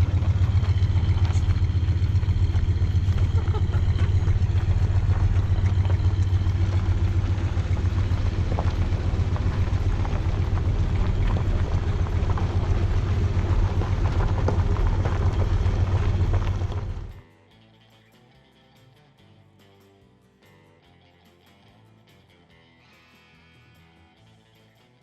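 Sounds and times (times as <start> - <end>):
car engine running: 0.0 - 17.2.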